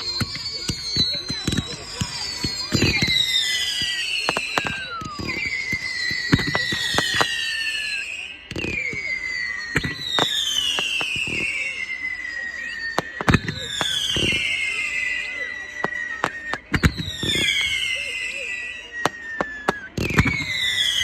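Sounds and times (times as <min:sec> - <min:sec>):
fireworks bangs and crackles: 0:00.0 - 0:21.0
whistling fireworks: 0:00.0 - 0:21.0.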